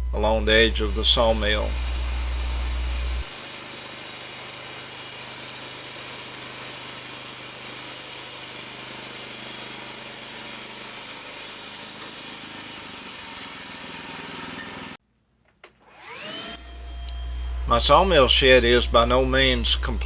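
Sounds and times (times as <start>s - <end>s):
sawmill machine running: 0.0s - 15.0s, 15.8s - 20.0s.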